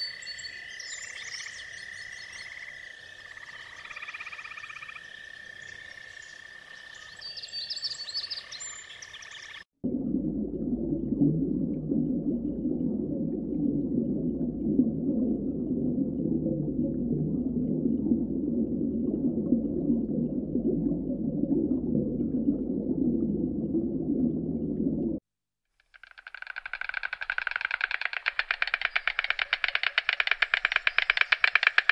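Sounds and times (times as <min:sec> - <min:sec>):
muffled underwater gurgle: 0:09.8 - 0:25.2.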